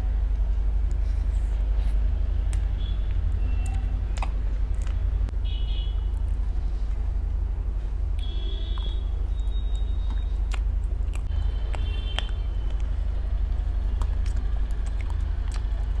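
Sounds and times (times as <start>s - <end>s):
steady low rumble: 0.0s - 16.0s
chewing and biting: 0.8s - 5.1s, 8.2s - 16.0s.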